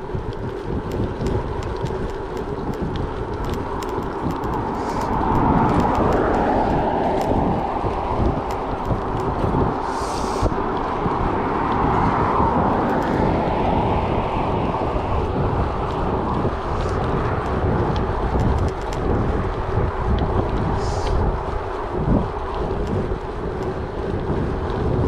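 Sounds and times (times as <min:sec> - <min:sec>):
small ticks: 0:00.0 - 0:10.9, 0:11.6 - 0:13.3, 0:15.9 - 0:21.3
tyres rolling on gravel: 0:00.0 - 0:25.0
wind buffeting microphone: 0:00.0 - 0:25.0.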